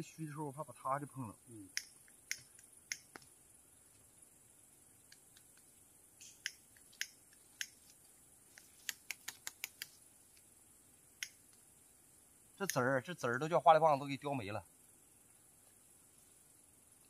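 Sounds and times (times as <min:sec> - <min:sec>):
hand tool clicking and scraping soil: 0:05.1 - 0:10.0.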